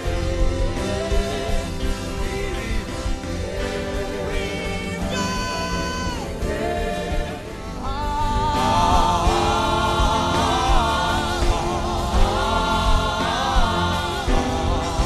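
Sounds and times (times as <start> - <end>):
low beat: 0.0 - 15.0
sustained instrumental chords: 0.0 - 15.0
person humming: 4.4 - 6.9.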